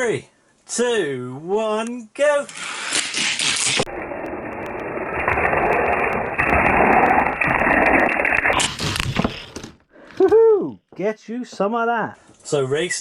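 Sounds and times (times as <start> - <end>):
toy cars rolling on plastic track: 2.5 - 9.6.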